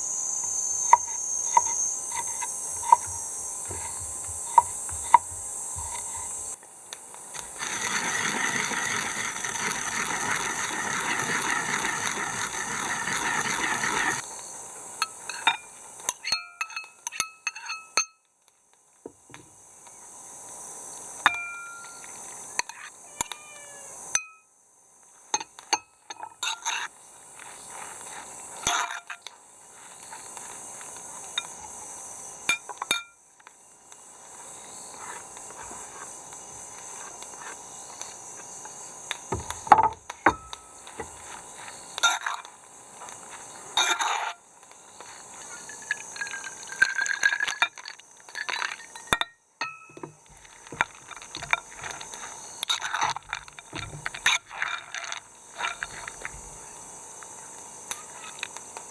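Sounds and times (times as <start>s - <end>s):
glassware clinking: 15.0s - 18.2s, 21.3s - 22.0s, 32.5s - 33.2s, 45.7s - 50.2s.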